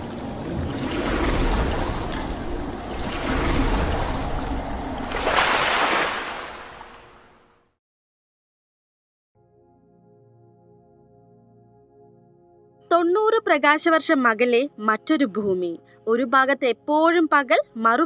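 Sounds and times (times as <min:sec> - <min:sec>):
rushing surf-like noise: 0:00.0 - 0:07.2.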